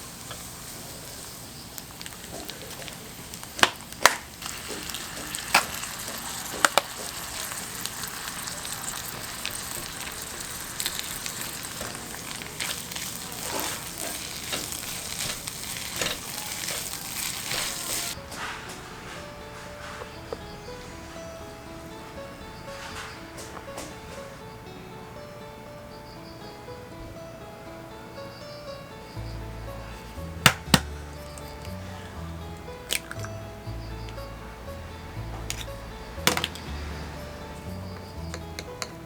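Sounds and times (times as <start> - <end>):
batter sizzling in oil: 0.0 - 18.2
sharp knocks: 30.5 - 31.0.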